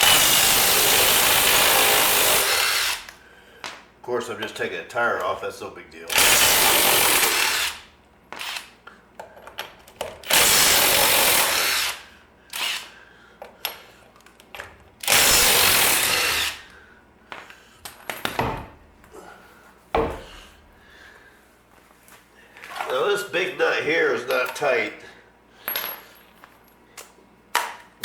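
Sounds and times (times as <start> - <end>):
impact wrench running: 0.0 - 3.2, 6.1 - 8.8, 10.0 - 13.0, 15.0 - 16.8
metal clinks of nuts and parts: 24.2 - 24.8, 25.6 - 26.8.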